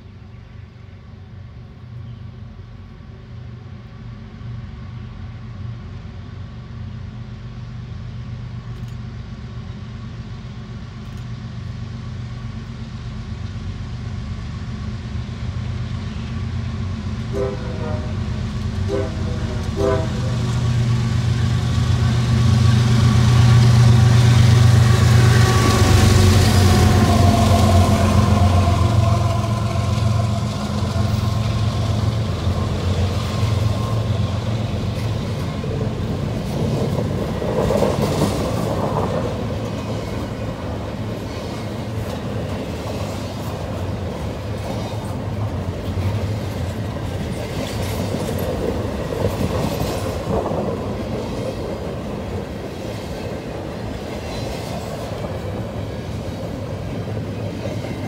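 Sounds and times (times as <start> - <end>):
diesel locomotive engine hum: 0.0 - 58.0
freight wheels rumbling on rails: 11.0 - 58.0
wheels clickety-clack: 34.7 - 58.0.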